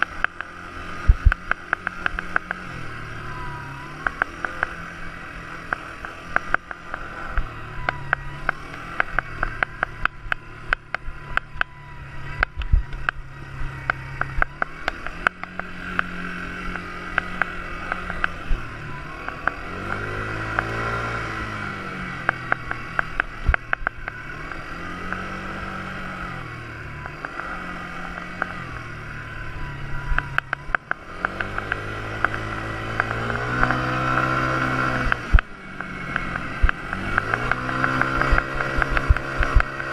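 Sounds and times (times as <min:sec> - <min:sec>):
sharp clicks and knocks: 0:00.0 - 0:02.7, 0:04.0 - 0:04.9, 0:05.6 - 0:11.7, 0:13.8 - 0:18.6, 0:19.2 - 0:20.8, 0:22.2 - 0:24.2, 0:30.1 - 0:39.9
quad bike engine revving: 0:00.0 - 0:39.9.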